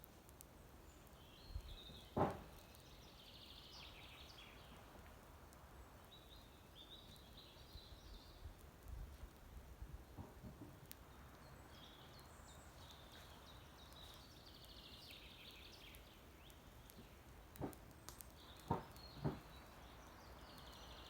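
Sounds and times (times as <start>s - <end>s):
faint outdoor background noise: 0.0s - 21.0s
dull thump: 2.2s - 2.5s, 18.6s - 19.5s.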